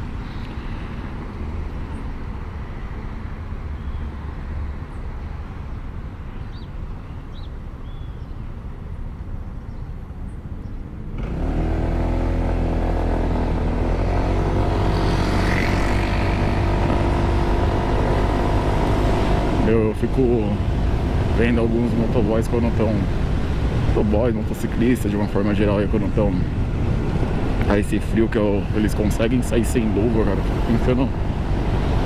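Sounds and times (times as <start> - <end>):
scooter engine rumble: 11.2 - 21.6
wind noise: 13.3 - 32.0.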